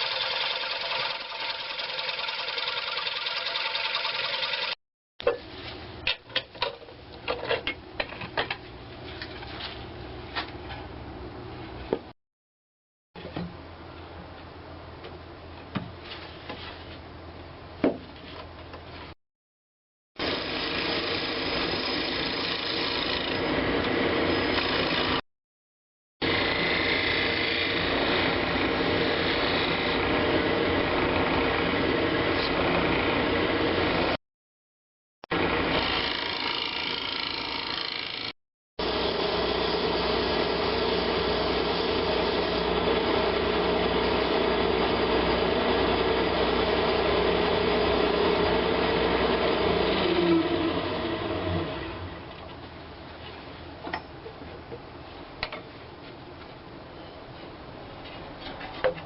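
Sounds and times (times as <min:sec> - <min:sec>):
lathe tool cutting wood: 0:00.0 - 0:04.8, 0:20.2 - 0:25.2, 0:26.2 - 0:34.0, 0:35.3 - 0:52.2.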